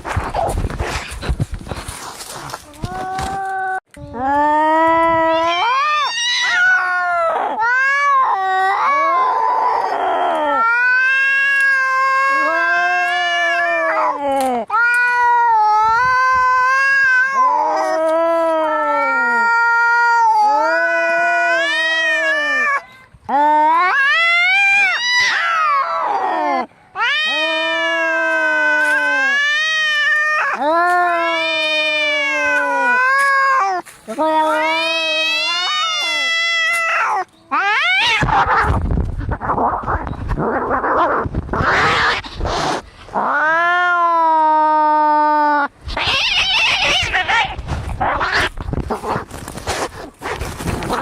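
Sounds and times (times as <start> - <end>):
cats yowling in a fight: 2.8 - 51.0.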